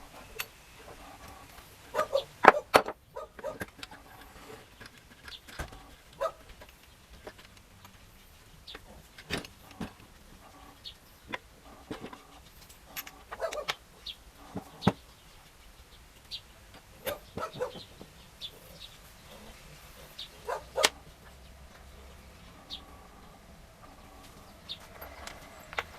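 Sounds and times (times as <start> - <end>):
bird chirping: 13.4 - 25.9.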